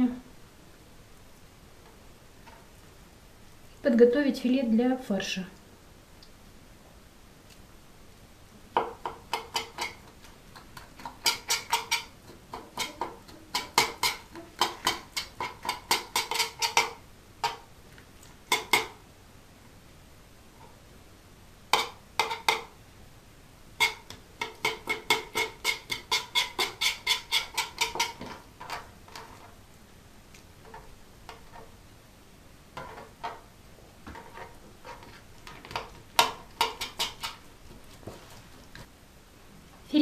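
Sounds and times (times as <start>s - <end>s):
knife clicking and scraping on board: 9.1s - 17.6s, 23.8s - 29.5s, 34.1s - 37.4s.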